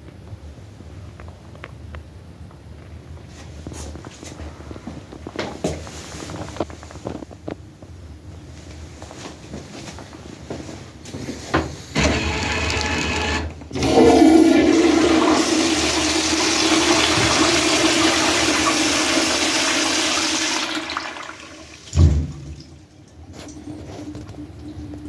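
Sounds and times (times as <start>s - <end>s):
toilet flush click: 12.0s - 22.7s
toilet flushing water rush: 12.0s - 25.0s
thump: 22.0s - 22.6s.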